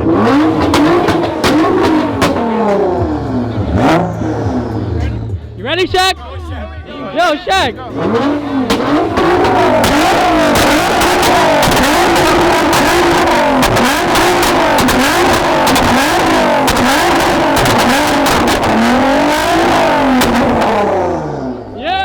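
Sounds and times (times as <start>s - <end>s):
exhaust crackles and pops: 0.0s - 3.2s, 8.6s - 21.2s
sports car engine revving: 0.0s - 5.5s, 7.8s - 22.0s.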